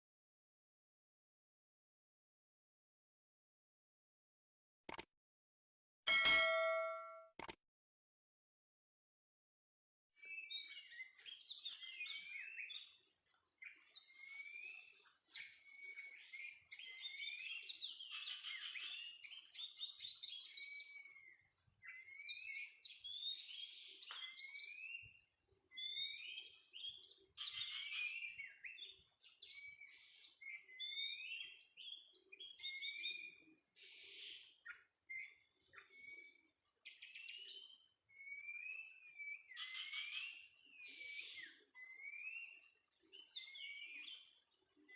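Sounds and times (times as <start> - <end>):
faint steady high tone: 6.1 - 7.4
bird singing whistled phrases: 37.0 - 42.6.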